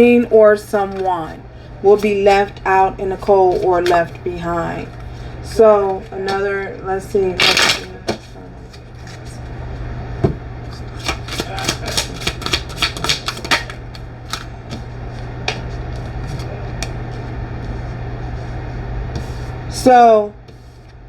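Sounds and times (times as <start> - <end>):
steady low hum: 0.0 - 21.0
cards being shuffled: 7.4 - 9.4, 10.7 - 17.8.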